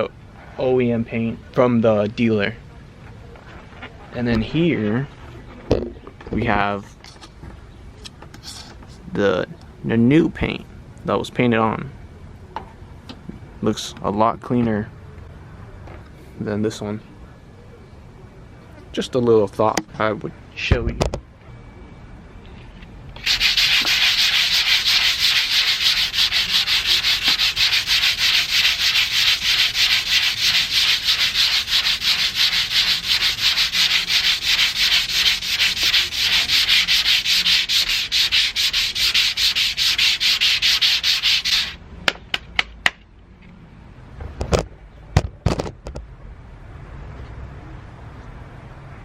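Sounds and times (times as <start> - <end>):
sandpaper rubbing on metal: 23.2 - 41.8.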